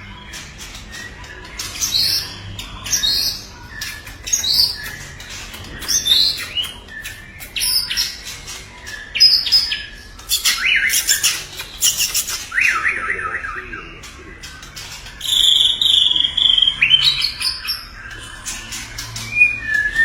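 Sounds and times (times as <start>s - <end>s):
bird singing whistled notes: 15.2s - 17.9s, 19.2s - 20.0s.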